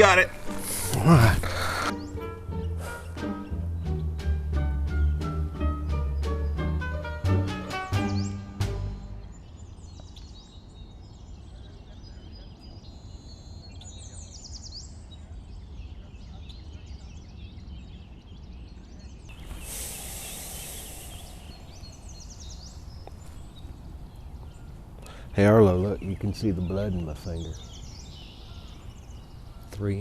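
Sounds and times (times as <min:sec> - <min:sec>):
small birds chirping: 0:00.0 - 0:30.0
rushing noise: 0:19.3 - 0:22.9.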